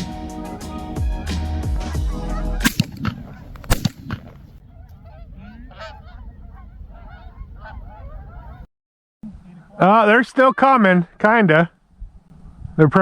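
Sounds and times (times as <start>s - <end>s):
music: 0.0s - 3.0s
geese honking: 0.0s - 8.7s.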